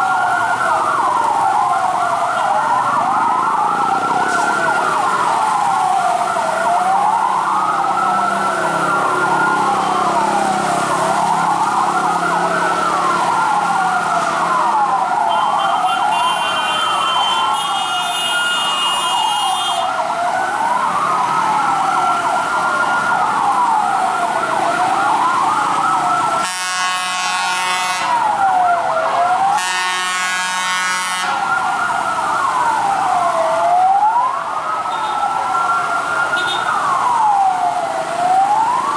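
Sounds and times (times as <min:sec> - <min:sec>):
fire truck sirens wailing: 0:00.0 - 0:38.9
horn sounding: 0:26.4 - 0:28.2, 0:29.6 - 0:31.4.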